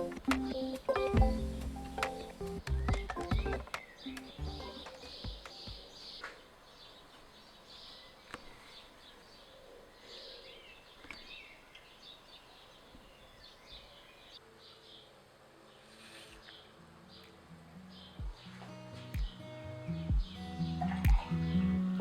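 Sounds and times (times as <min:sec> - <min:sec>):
quiet low music notes: 0:00.0 - 0:06.8, 0:14.4 - 0:22.0
faint birds chirping: 0:00.0 - 0:22.0.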